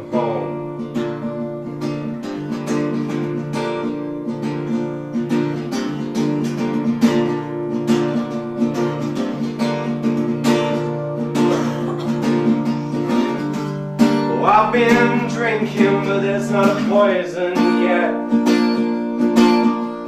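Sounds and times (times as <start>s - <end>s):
person singing folk song: 0.0s - 3.5s, 10.7s - 20.0s
acoustic guitar strumming: 0.0s - 20.0s.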